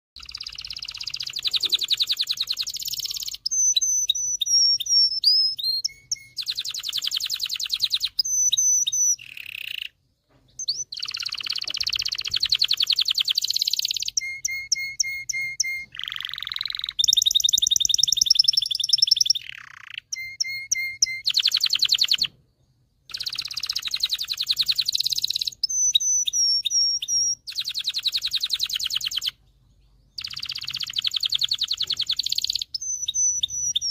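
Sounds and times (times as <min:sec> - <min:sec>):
canary singing: 0:00.2 - 0:33.9.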